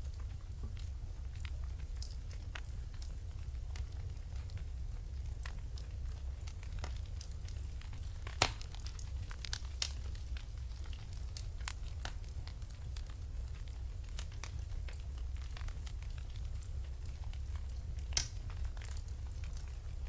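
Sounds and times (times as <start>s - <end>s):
low fire rumble: 0.0s - 20.0s
wood fire crackling: 0.0s - 20.0s.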